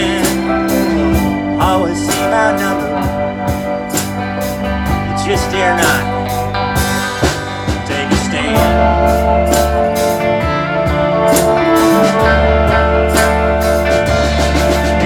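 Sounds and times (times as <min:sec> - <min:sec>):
bass guitar: 0:00.0 - 0:15.0
electric guitar: 0:00.0 - 0:15.0
steady drum beat: 0:00.0 - 0:15.0.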